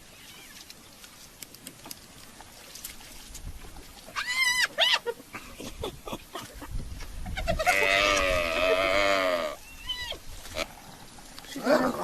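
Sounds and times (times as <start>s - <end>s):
animal calf crying in distress: 4.1s - 5.1s, 7.4s - 10.7s.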